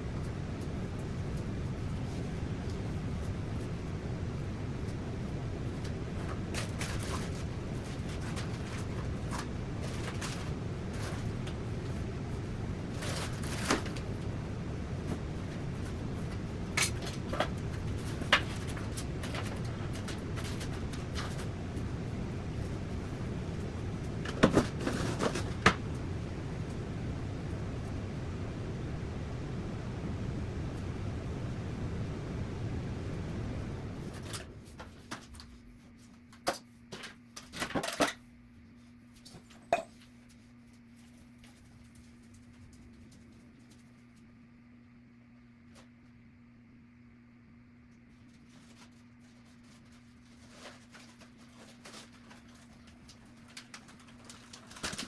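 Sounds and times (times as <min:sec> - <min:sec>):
steady rushing noise: 0:00.0 - 0:34.7
low background rumble: 0:00.0 - 0:36.4
faint steady hum: 0:00.0 - 0:55.0.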